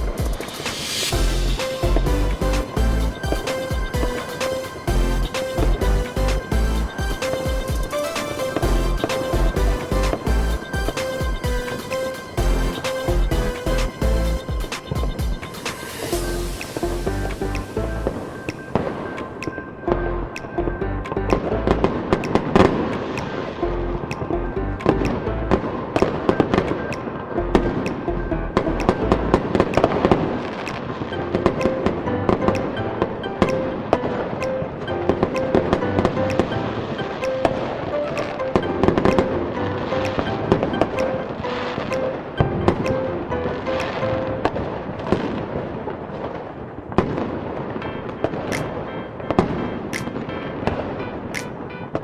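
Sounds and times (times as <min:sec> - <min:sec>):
fireworks bursting and crackling: 0:00.0 - 0:19.8, 0:29.4 - 0:32.8, 0:33.4 - 0:52.0
music with low bass notes: 0:01.1 - 0:04.2, 0:04.9 - 0:07.9, 0:08.6 - 0:11.7, 0:12.4 - 0:15.4, 0:16.1 - 0:18.1, 0:19.9 - 0:22.0, 0:23.6 - 0:25.7, 0:27.4 - 0:29.6.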